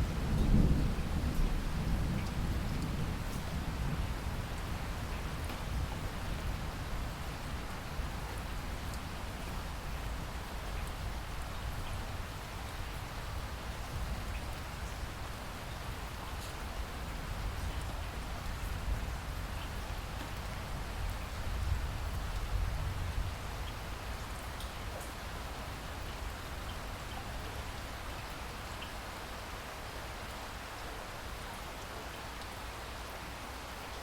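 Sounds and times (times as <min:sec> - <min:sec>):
steady rain falling: 0:00.0 - 0:34.0
raindrop ticks: 0:04.5 - 0:05.7, 0:19.5 - 0:21.2.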